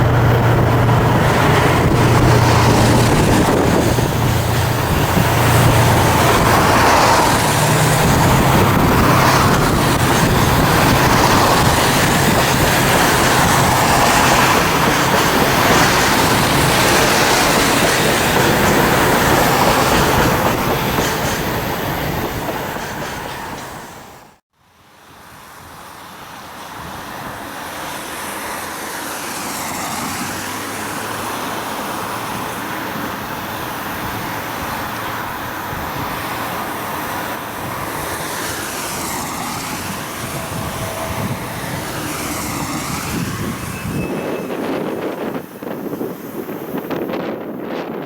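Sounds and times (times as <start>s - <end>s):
freight train wheels clacking: 0.0s - 24.4s
locomotive engine hum: 0.0s - 48.0s.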